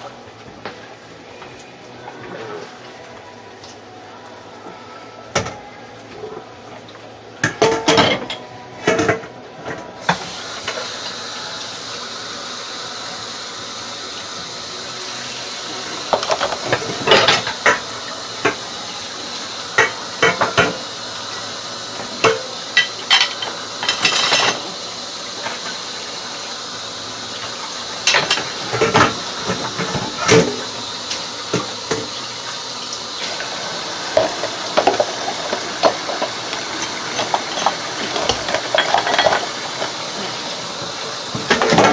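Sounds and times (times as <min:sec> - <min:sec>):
dishes and cutlery clinking: 0:07.4 - 0:09.2, 0:37.2 - 0:39.9
tap water running into sink: 0:10.0 - 0:41.9.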